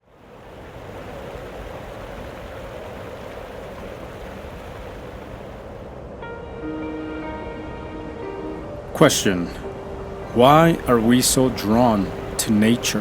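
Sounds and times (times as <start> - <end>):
waterfall roaring: 0.1 - 6.0, 8.9 - 13.0.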